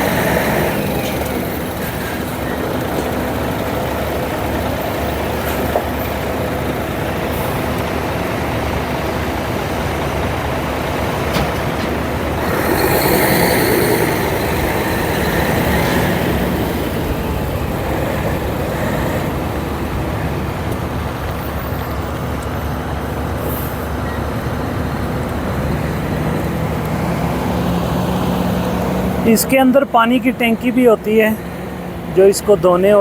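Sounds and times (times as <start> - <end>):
truck engine running: 0.0 - 33.0
air hissing: 11.4 - 19.2.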